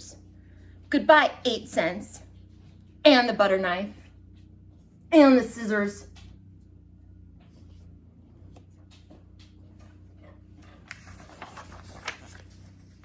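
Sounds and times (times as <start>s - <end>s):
low steady hum: 0.0s - 13.0s
book page turning: 10.4s - 13.0s.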